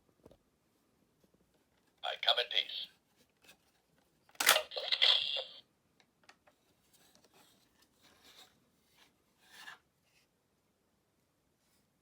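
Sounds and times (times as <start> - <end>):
plastic toy being handled: 3.1 - 5.6
sharp plastic click: 4.4 - 4.8.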